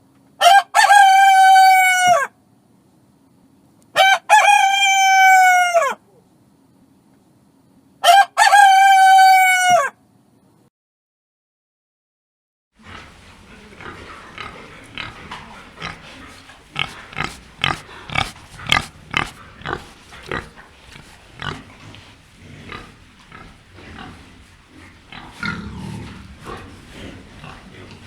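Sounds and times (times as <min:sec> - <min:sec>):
pig grunting: 0:12.8 - 0:28.0.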